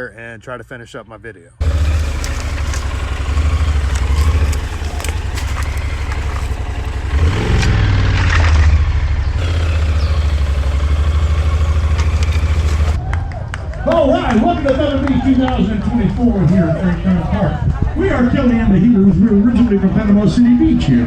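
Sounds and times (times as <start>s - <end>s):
motorcycle engine rumbling: 1.6s - 13.0s.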